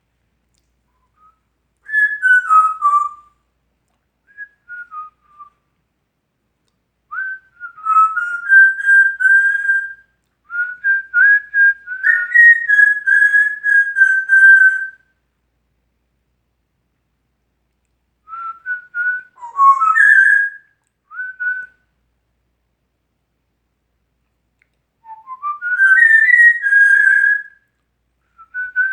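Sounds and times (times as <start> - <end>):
parrot whistling a tune: 1.1 - 3.3, 7.1 - 15.0, 18.3 - 21.7, 25.0 - 27.6.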